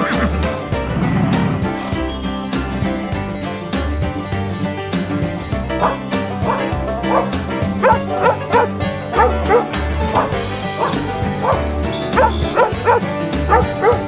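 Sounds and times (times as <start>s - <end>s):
background music: 0.0s - 14.0s
dog barking in short yelps: 5.8s - 11.6s.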